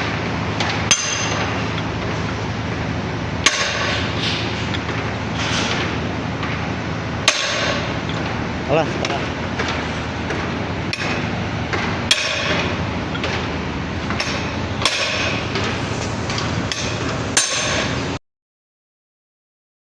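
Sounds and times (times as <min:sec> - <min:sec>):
workshop noise: 0:00.0 - 0:18.2
hammer striking metal: 0:00.9 - 0:01.5, 0:03.4 - 0:04.4, 0:07.2 - 0:08.4, 0:10.3 - 0:11.3, 0:12.1 - 0:12.7, 0:14.1 - 0:18.0.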